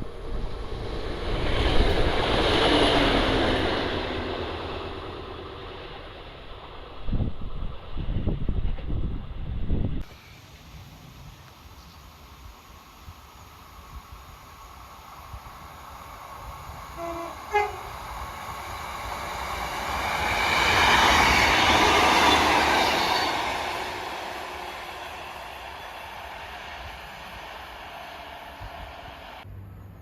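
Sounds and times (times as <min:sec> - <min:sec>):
train rumbling past: 0:00.0 - 0:30.0
two-note train horn: 0:17.0 - 0:18.0.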